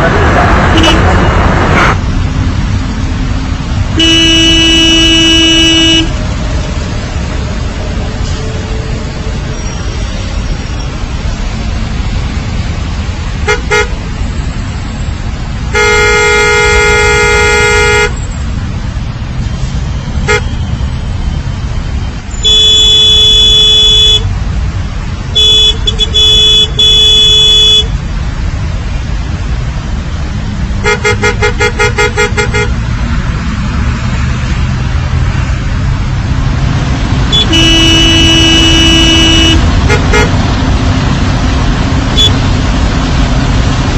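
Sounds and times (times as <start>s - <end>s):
traffic rumble: 0.0s - 43.9s
vehicle horns honking: 0.6s - 2.0s, 3.9s - 6.2s, 13.4s - 14.1s, 15.7s - 18.2s, 20.2s - 20.8s, 22.3s - 24.3s, 25.3s - 28.0s, 30.8s - 32.8s, 37.2s - 40.5s, 42.1s - 42.4s.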